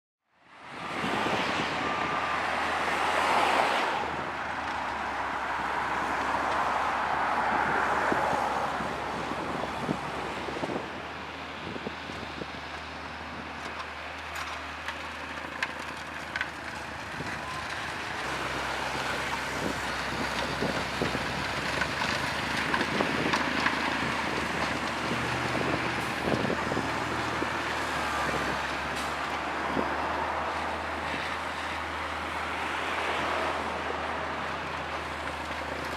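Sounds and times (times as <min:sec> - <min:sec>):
vehicle engine hum: 0:00.4 - 0:35.9
wind on microphone: 0:00.7 - 0:04.6, 0:05.4 - 0:12.6, 0:22.4 - 0:28.7
tyres hissing on road: 0:12.8 - 0:35.9.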